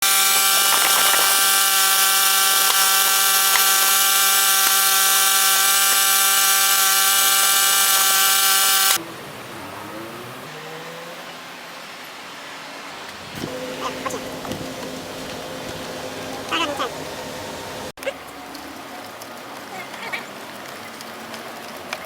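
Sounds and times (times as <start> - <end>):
pressure washer engine hum: 0.0 - 8.0, 13.1 - 17.9
water spray hissing: 0.0 - 9.0, 13.3 - 17.9.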